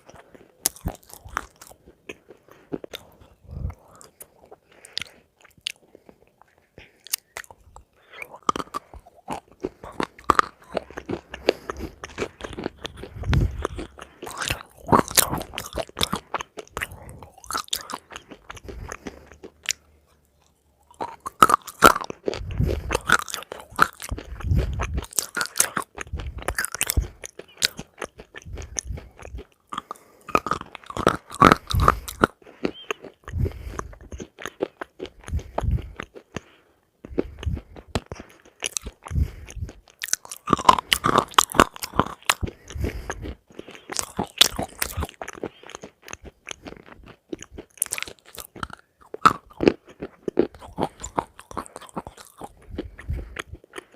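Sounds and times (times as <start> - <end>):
chewing crunchy food: 0.0 - 53.9.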